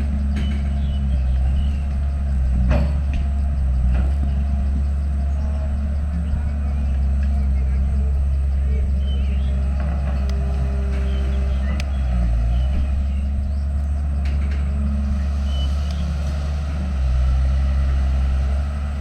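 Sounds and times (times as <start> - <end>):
heavy diesel engine under load: 0.0 - 19.0
faint sharp clicks: 11.7 - 11.9, 15.8 - 16.0.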